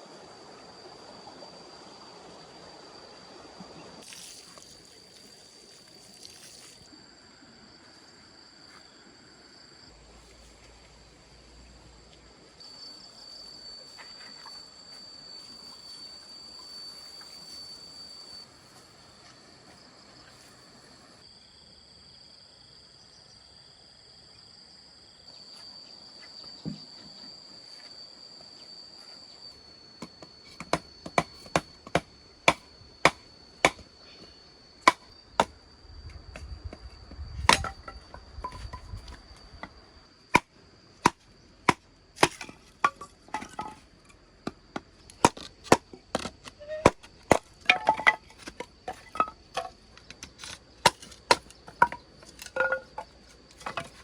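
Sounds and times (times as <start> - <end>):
high-pitched insects chirring: 0.0 - 54.0
chopping knocks: 30.1 - 33.8, 34.9 - 35.5, 37.5 - 38.8.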